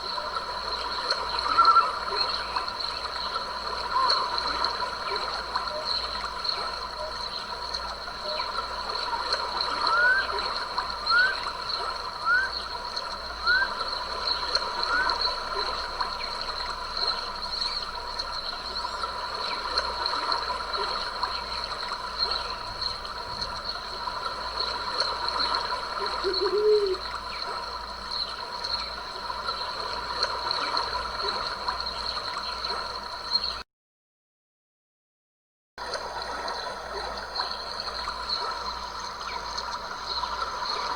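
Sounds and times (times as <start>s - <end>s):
stream water flowing: 0.0s - 33.6s, 35.8s - 40.9s
low animal call: 26.0s - 27.0s.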